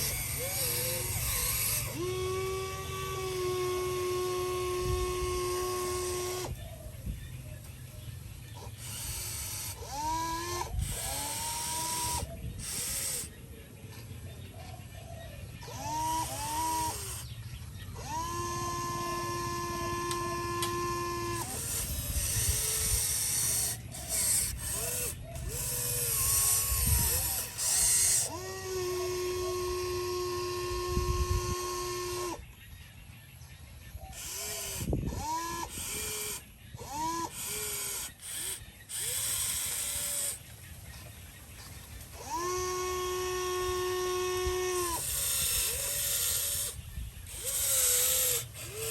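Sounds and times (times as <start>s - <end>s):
machine whine: 0.0s - 6.6s, 15.6s - 32.5s, 34.1s - 48.9s.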